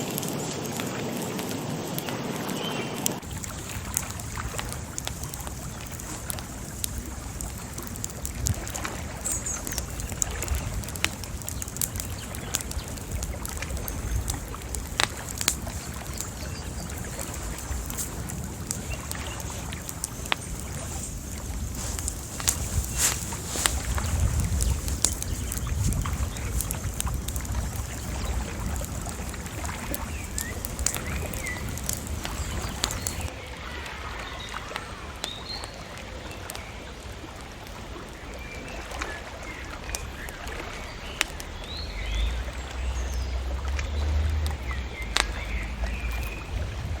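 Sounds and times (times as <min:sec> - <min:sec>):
low wind rumble: 0:00.0 - 0:47.0
sharp clicks and pops: 0:02.0 - 0:33.3.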